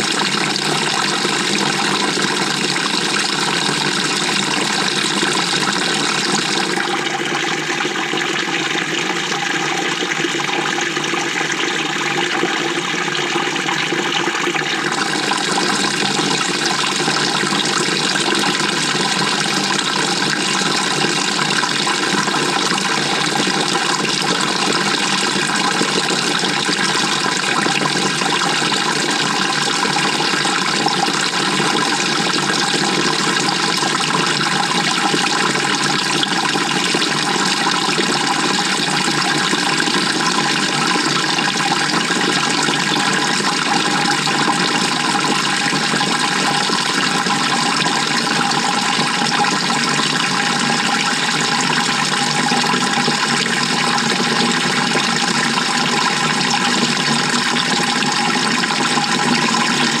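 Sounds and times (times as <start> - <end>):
washing machine water churning: 0.0 - 60.0.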